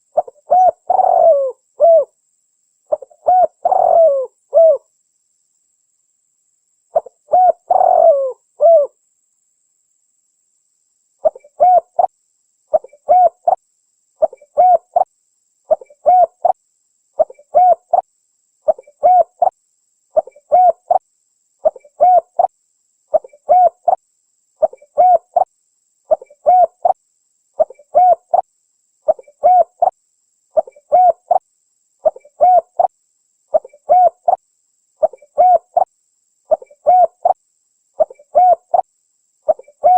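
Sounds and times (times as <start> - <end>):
dove cooing: 0.0 - 2.2, 2.9 - 4.9, 7.0 - 9.0, 11.2 - 12.1, 12.7 - 13.6, 14.2 - 15.1, 15.7 - 16.6, 17.2 - 18.0, 18.7 - 19.5, 20.2 - 21.0, 21.6 - 22.5, 23.1 - 24.0, 24.6 - 25.5, 26.1 - 27.0, 27.6 - 28.4, 29.1 - 29.9, 30.6 - 31.4, 32.0 - 32.9, 33.5 - 34.4, 35.0 - 35.9, 36.5 - 37.4, 38.0 - 38.8, 39.5 - 39.9.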